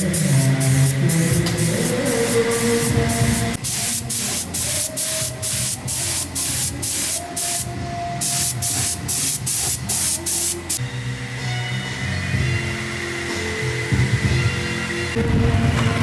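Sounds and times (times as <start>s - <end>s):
spray hissing bursts: 0.0s - 10.8s.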